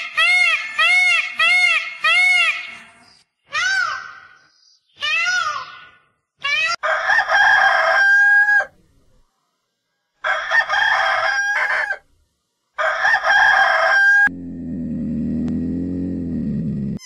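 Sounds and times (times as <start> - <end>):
rooster crowing: 6.8 - 8.7, 10.2 - 12.1, 12.8 - 14.4.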